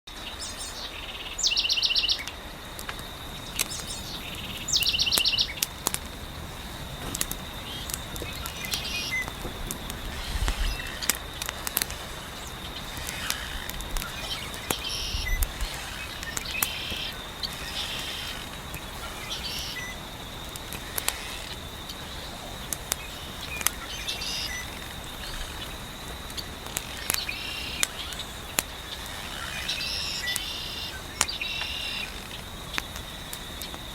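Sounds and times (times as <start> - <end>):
birds chirping: 0.2 - 2.3, 3.3 - 33.0
high insect buzz: 0.3 - 33.9
loud rapid bird trills: 0.4 - 2.3, 3.7 - 5.6, 7.7 - 9.3, 12.2 - 20.0, 23.0 - 25.8
wood fire crackling: 2.2 - 33.9.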